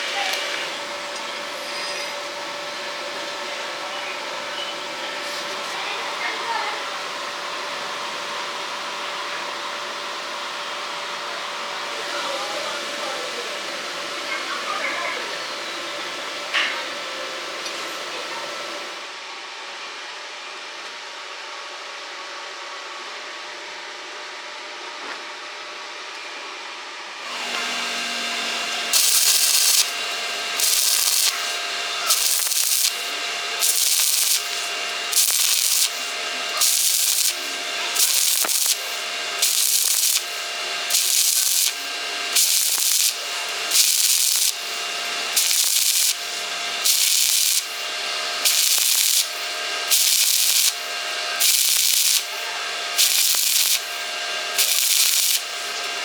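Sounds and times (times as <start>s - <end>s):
steady hum: 27.6s - 56.0s.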